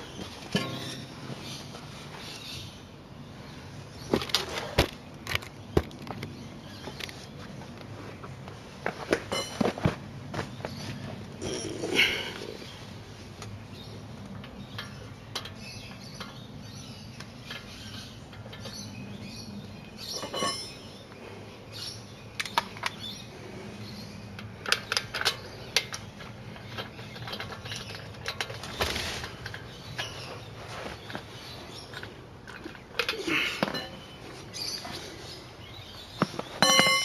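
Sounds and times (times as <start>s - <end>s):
small metallic clinks: 20.0s - 21.0s, 36.6s - 37.0s.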